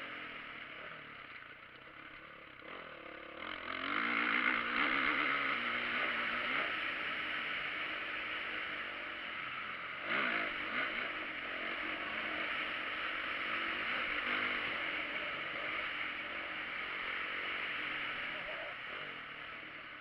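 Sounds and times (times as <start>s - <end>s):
motocross engines revving: 0.0s - 20.0s.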